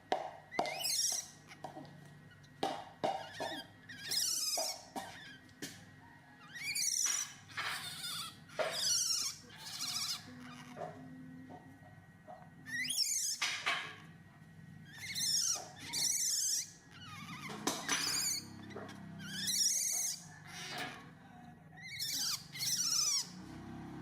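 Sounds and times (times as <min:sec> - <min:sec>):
baby monkey squealing: 0:00.6 - 0:01.6, 0:03.1 - 0:05.5, 0:06.4 - 0:10.9, 0:12.6 - 0:13.5, 0:14.8 - 0:21.0, 0:21.8 - 0:23.4.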